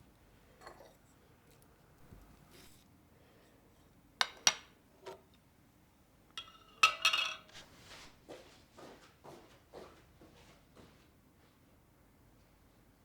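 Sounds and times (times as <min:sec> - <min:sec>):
dishes clinking: 0:06.4 - 0:07.6.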